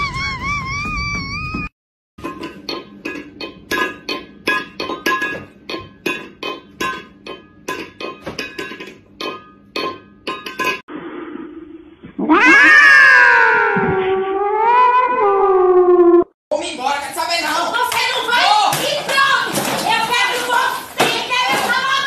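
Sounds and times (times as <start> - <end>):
metal bowl clanking on tile floor: 2.2 - 10.8
cat meowing loudly: 12.2 - 16.0.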